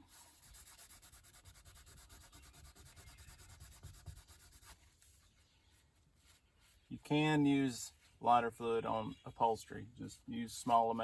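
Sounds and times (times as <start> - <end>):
paper towel scrubbing a panel: 0.0 - 5.2.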